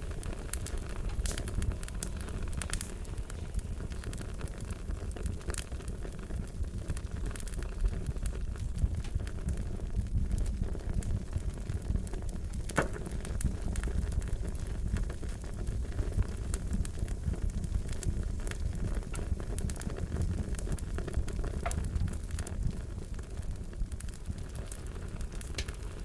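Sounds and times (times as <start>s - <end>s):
fire crackling: 0.0s - 26.0s
wood pops and snaps: 12.7s - 13.0s, 21.6s - 22.1s.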